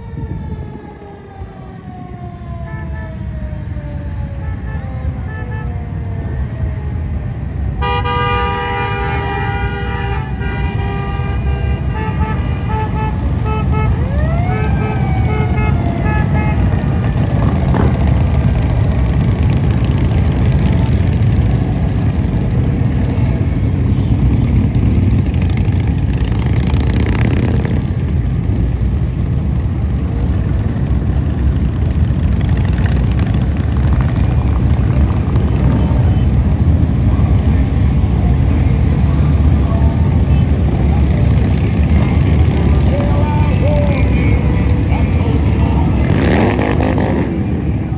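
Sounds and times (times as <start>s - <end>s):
siren whoop: 0.0s - 7.1s, 12.8s - 17.4s
motorcycle engines rumbling: 0.0s - 47.9s
vehicle horns honking: 7.8s - 18.0s.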